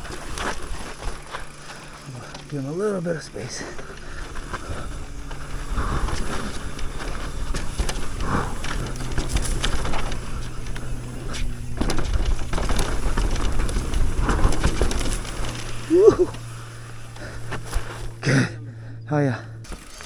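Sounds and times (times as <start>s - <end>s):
bike rattling and clicking: 0.0s - 20.0s
tyres on dirt: 0.0s - 20.0s
wind rumbling on microphone: 3.9s - 18.2s.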